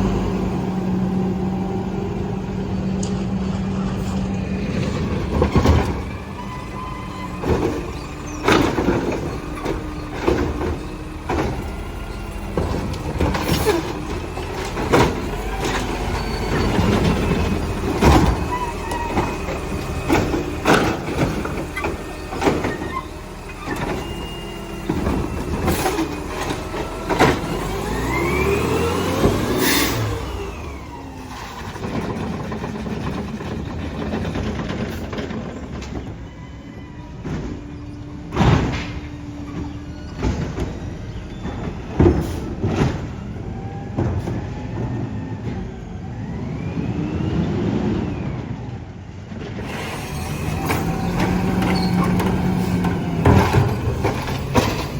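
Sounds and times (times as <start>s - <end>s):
garbage truck engine running: 0.0s - 54.9s
clanks and bangs of metal barrels: 37.2s - 45.6s.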